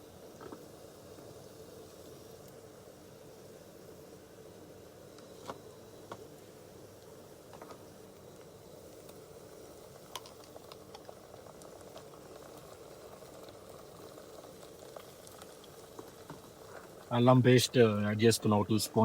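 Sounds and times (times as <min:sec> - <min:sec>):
paste sizzling in a pan: 0:00.0 - 0:19.0.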